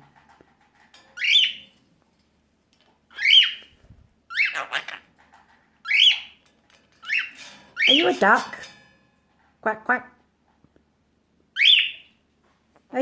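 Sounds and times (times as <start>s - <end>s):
parrot chirping calls: 1.2s - 1.7s, 3.1s - 5.1s, 5.8s - 6.4s, 7.0s - 8.4s, 11.5s - 12.2s.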